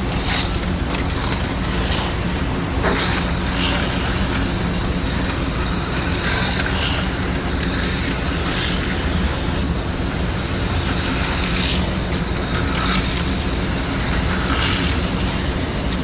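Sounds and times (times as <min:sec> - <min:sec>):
slot car motors whirring: 0:00.0 - 0:16.0.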